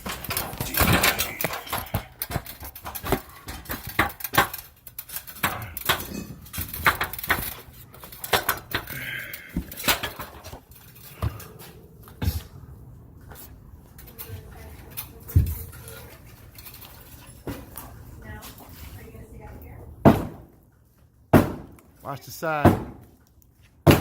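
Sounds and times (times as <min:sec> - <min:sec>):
wooden boards clattering and knocking: 0:00.0 - 0:10.6, 0:20.0 - 0:20.5, 0:22.6 - 0:23.2.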